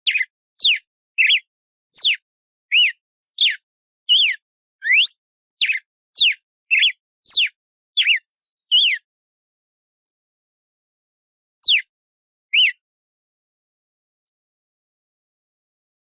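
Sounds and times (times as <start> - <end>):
bird singing whistled notes: 0.0 - 9.1, 11.6 - 11.9, 12.5 - 12.8.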